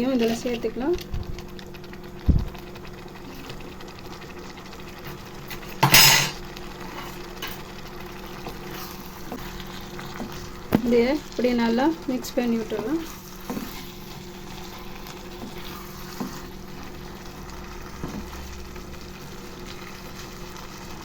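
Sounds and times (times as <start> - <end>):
utensil thud on metal pan: 5.8 - 6.4
utensil scraping metal pan: 5.8 - 7.6.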